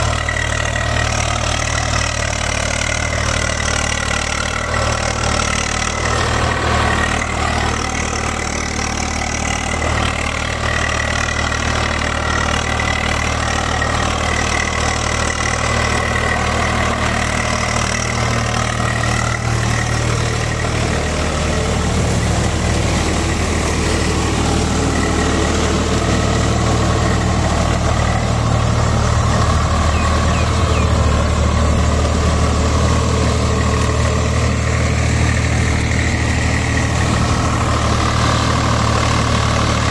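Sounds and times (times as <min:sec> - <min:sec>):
tractor diesel engine droning: 0:00.0 - 0:39.9.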